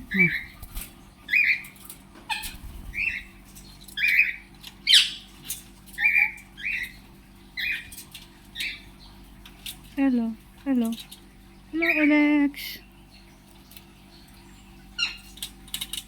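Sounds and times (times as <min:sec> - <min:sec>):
parrots squawking: 0:00.0 - 0:00.6, 0:01.3 - 0:03.4, 0:04.0 - 0:05.3, 0:06.0 - 0:07.0, 0:07.6 - 0:08.0, 0:11.8 - 0:12.2, 0:15.0 - 0:15.3.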